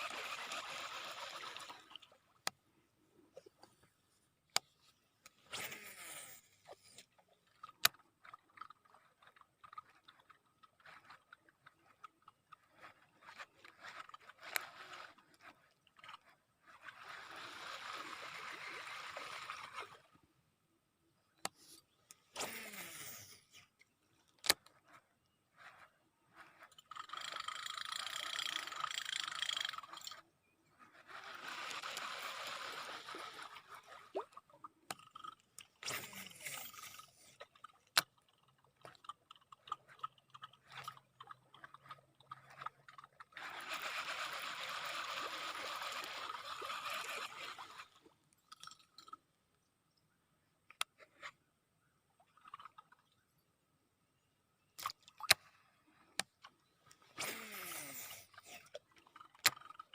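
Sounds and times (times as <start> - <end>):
fishing reel whirring: 0.0 - 1.9, 22.3 - 23.4, 25.7 - 30.2, 30.8 - 34.3, 35.0 - 37.4, 43.3 - 48.0, 57.1 - 58.6
sharp reel clicks: 26.6 - 30.2.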